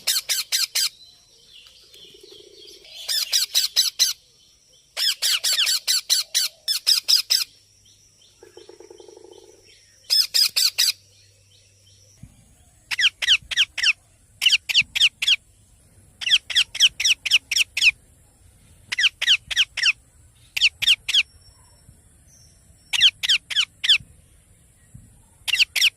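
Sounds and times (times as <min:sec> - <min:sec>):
baby parrot squawking: 0:05.0 - 0:07.4.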